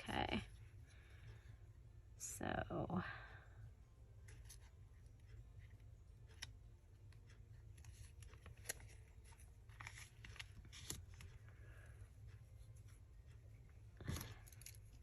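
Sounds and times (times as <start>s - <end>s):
paper rustling: 7.8s - 11.4s.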